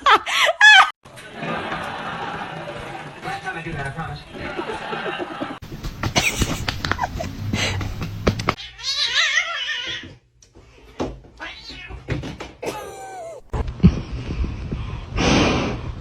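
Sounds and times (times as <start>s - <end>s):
cats meowing: 8.6s - 10.2s, 12.6s - 13.6s.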